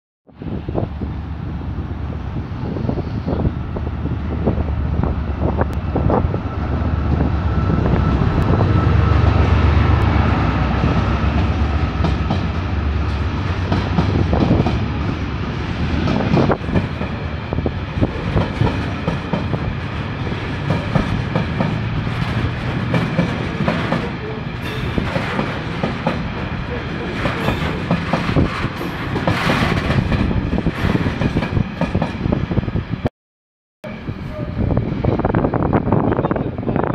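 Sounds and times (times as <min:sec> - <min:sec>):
diesel locomotive rumble: 0:00.4 - 0:33.1, 0:33.8 - 0:36.9
wagons clattering over rail joints: 0:18.2 - 0:32.0.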